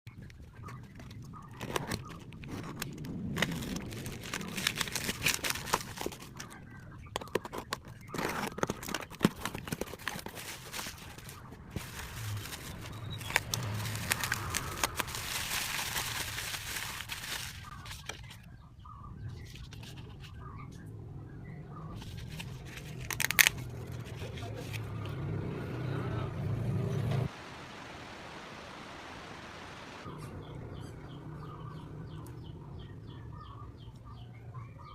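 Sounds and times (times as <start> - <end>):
plastic packaging crinkling: 0.5 - 18.4, 22.0 - 24.5.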